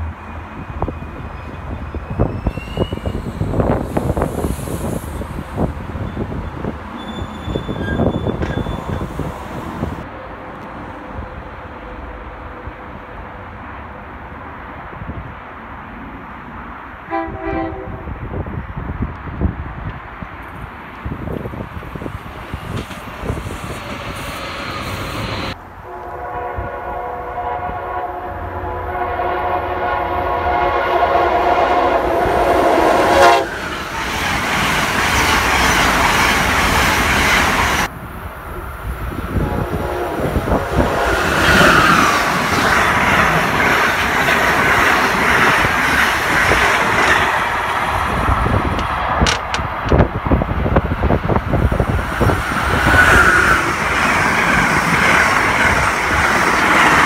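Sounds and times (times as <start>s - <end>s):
trains passing with wheel clatter: 0.0s - 57.0s
multi-note train horn: 17.1s - 18.2s, 25.8s - 33.6s, 39.3s - 41.8s.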